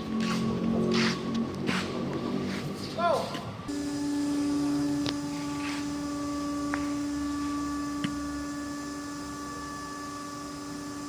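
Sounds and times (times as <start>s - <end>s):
glass-cutting machine humming: 3.7s - 11.0s.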